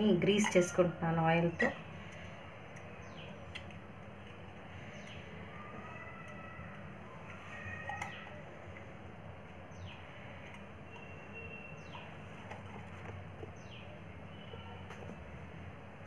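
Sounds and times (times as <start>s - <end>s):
faint background hum: 0.0s - 16.0s
bird chirping: 9.7s - 12.8s.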